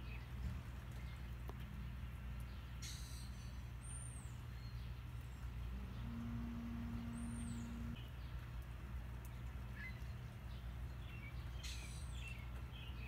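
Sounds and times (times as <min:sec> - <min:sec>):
birds chirping: 0:00.0 - 0:13.0
low background rumble: 0:04.2 - 0:11.6.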